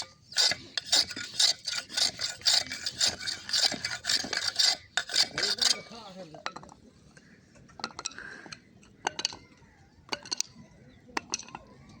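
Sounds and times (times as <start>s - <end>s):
tool rubbing over workpiece: 0.0s - 6.1s.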